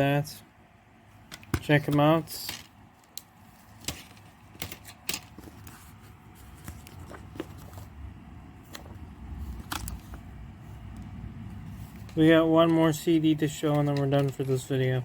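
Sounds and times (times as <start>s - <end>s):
low background rumble: 6.0s - 14.8s.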